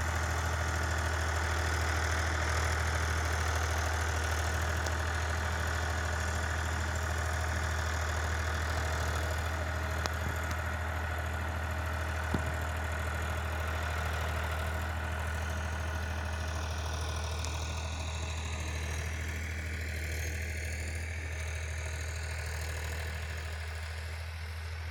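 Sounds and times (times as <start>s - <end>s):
tractor diesel engine droning: 0.0s - 24.9s.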